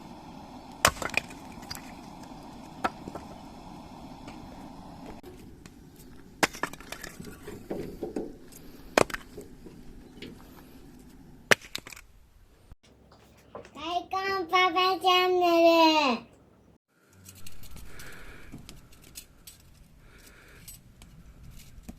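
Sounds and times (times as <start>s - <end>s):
campfire crackling: 0.0s - 13.8s, 17.0s - 21.9s
firewood popping: 0.0s - 13.8s.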